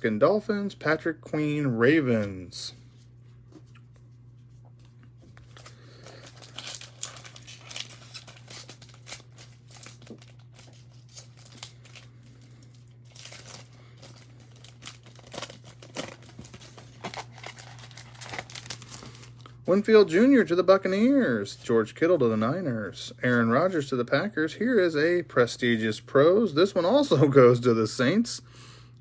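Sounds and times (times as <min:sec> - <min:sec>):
steady low hum: 0:00.0 - 0:29.0
card pack wrapper crinkling: 0:05.3 - 0:19.7.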